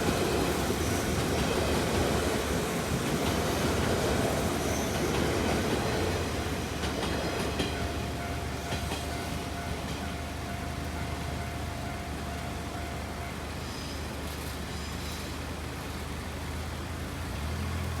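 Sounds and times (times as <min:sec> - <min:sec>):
wheels clacking over rail joints: 0:00.0 - 0:08.0
electric train running past: 0:00.0 - 0:16.6.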